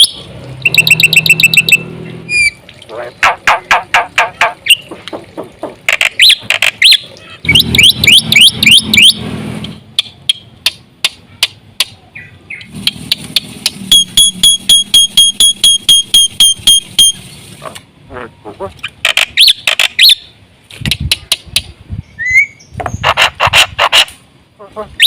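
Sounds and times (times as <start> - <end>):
repeated ringing bird notes: 0.0 - 2.7, 5.9 - 9.3, 9.9 - 17.3.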